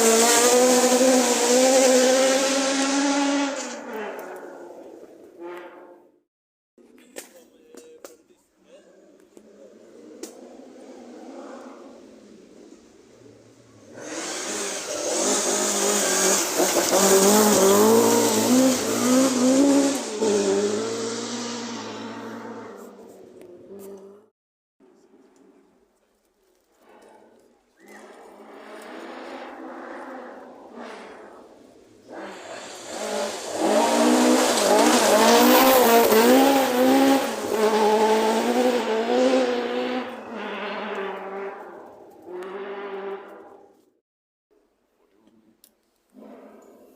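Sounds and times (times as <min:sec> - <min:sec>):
rally car speeding past: 0:00.0 - 0:06.0, 0:09.6 - 0:24.0, 0:27.9 - 0:43.7.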